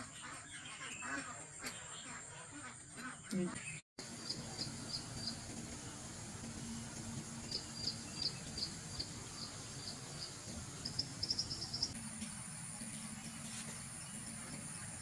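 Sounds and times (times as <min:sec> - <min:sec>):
insect chirping: 0:04.0 - 0:05.4, 0:07.3 - 0:12.0
faint steady hum: 0:04.0 - 0:15.0.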